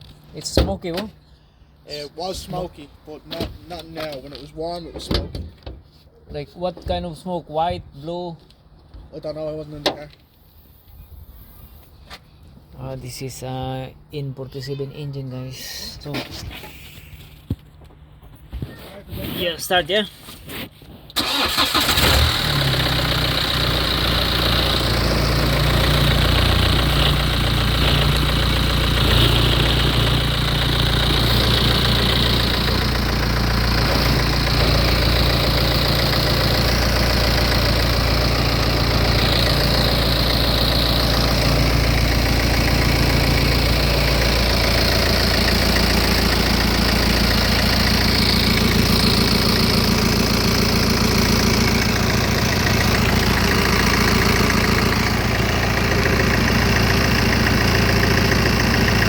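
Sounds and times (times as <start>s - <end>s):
diesel engine cranking and starting: 21.1s - 59.0s
diesel engine idling: 21.2s - 59.0s.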